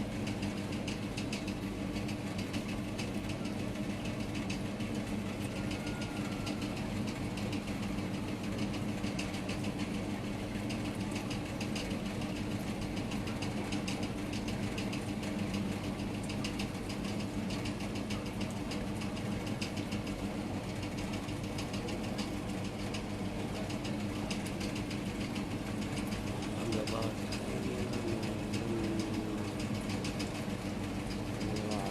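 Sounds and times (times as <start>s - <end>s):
low mechanical hum: 0.0s - 31.9s
rain patter: 10.6s - 31.9s.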